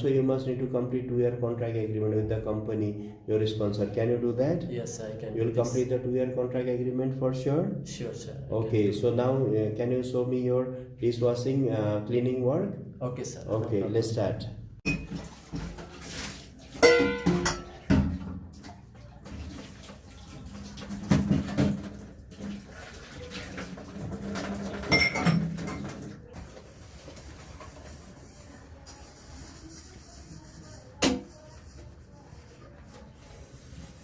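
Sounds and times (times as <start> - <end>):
dishes and pots clattering: 14.8 - 18.8, 20.7 - 22.0, 23.2 - 26.1.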